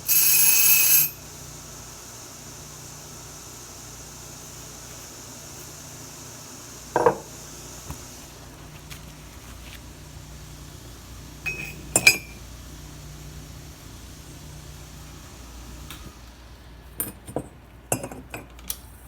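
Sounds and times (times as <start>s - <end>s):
ringing metallic clinks: 0.1s - 1.2s, 11.5s - 12.4s.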